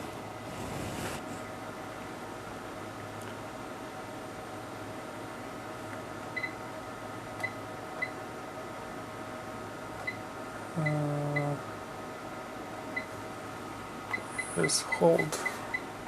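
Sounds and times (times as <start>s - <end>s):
instrument fans humming: 4.0s - 16.0s.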